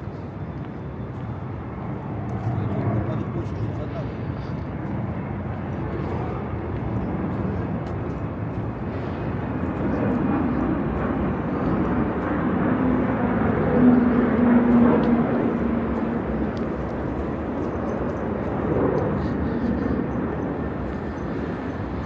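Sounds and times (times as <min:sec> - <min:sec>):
distant engine rumble: 0:05.8 - 0:22.0.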